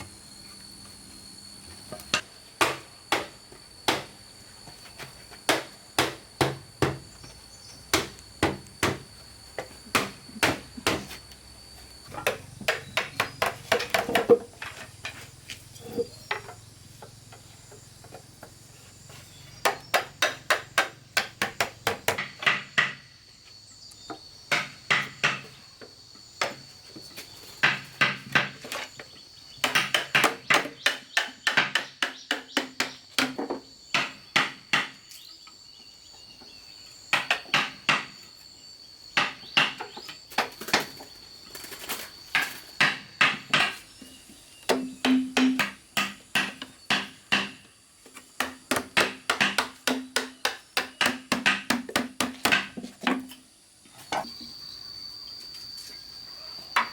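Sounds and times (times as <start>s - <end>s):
tool striking bamboo: 2.1s - 4.2s, 5.4s - 7.1s, 7.9s - 9.1s, 9.9s - 11.2s, 12.1s - 15.2s, 24.5s - 25.5s, 29.6s - 35.1s, 37.1s - 38.2s, 39.2s - 40.9s, 42.3s - 43.9s, 44.7s - 47.7s, 48.4s - 53.4s.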